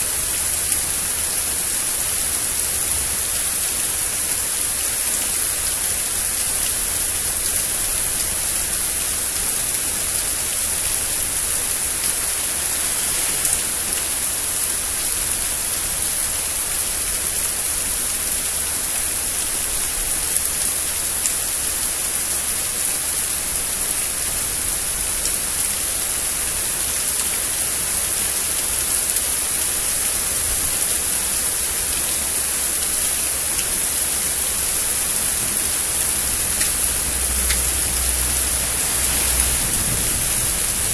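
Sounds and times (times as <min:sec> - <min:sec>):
steady rain hiss: 0:00.0 - 0:40.9
raindrop ticks: 0:00.4 - 0:12.8, 0:18.2 - 0:22.3, 0:23.5 - 0:26.1, 0:32.7 - 0:40.9.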